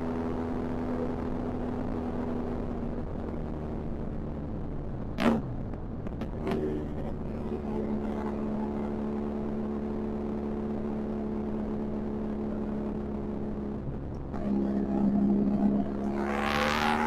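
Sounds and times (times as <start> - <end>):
motorcycle engine running: 5.2 - 17.0.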